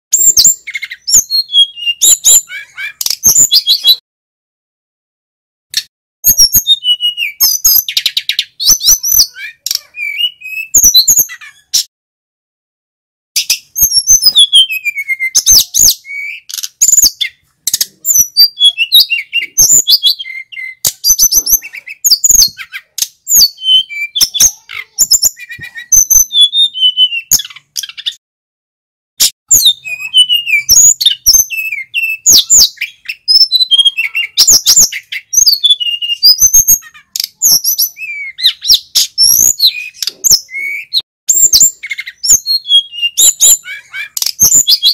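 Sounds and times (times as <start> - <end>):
bird singing chirps and trills: 0.1 - 4.0, 5.8 - 11.9, 13.4 - 28.2, 29.5 - 44.9.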